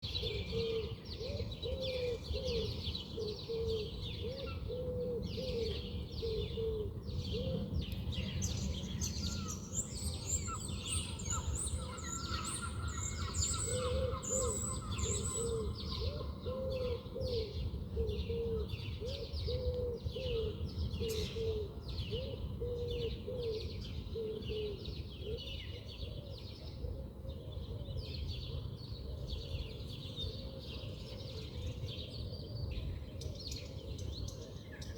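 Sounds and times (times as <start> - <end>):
small birds chirping: 7.3 - 16.4.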